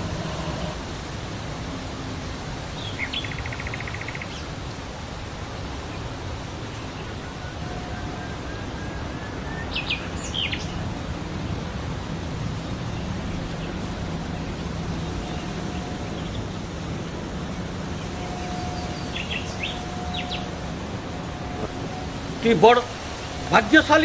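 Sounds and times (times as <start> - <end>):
outdoor background noise: 0.0 - 24.0
bird chirps: 2.8 - 4.5, 6.7 - 10.9, 17.9 - 22.3.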